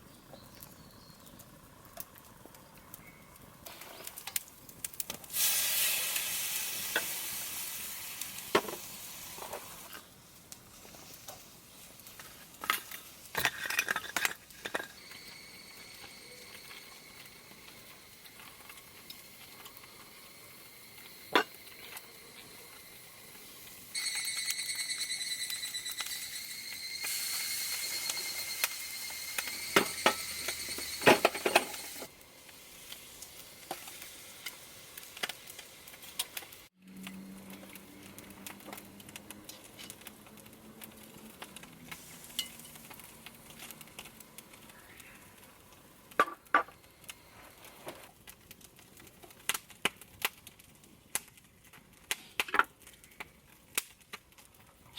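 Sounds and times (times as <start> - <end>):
scallops sizzling on grill: 0.0 - 51.2
high whistling hiss: 5.3 - 10.3, 14.8 - 36.7.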